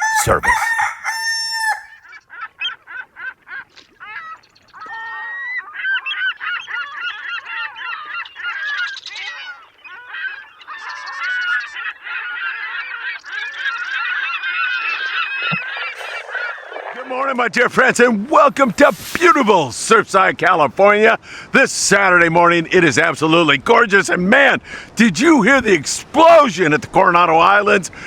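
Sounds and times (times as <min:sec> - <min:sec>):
flock of birds calling: 0:00.0 - 0:02.0, 0:04.8 - 0:17.6.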